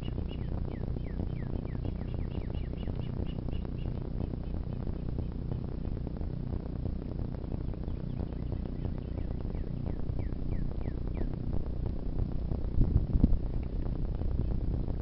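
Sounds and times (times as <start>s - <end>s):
bird chirping: 0.0s - 5.6s, 7.4s - 11.4s
steady low rumble: 0.0s - 15.0s
small crackles and clicks: 11.2s - 15.0s.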